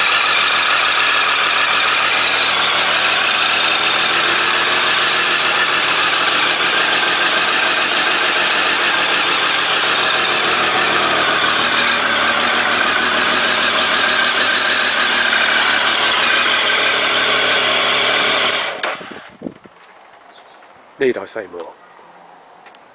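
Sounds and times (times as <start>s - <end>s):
motorcycle engine idling: 0.0s - 20.6s.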